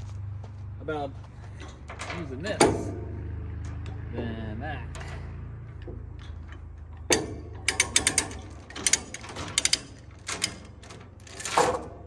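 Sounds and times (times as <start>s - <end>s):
metallic ratchet clicks: 5.0s - 5.2s, 7.1s - 12.0s.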